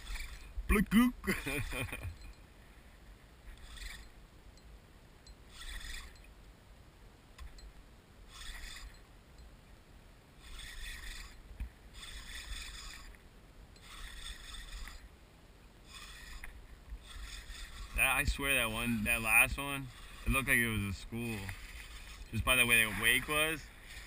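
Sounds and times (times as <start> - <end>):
kayak paddle swishing water: 15.9 - 24.0.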